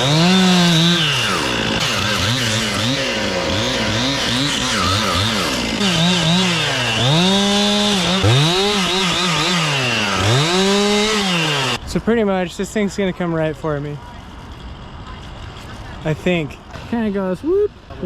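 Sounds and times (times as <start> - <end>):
chainsaw cutting wood: 0.0 - 11.8, 16.7 - 17.3.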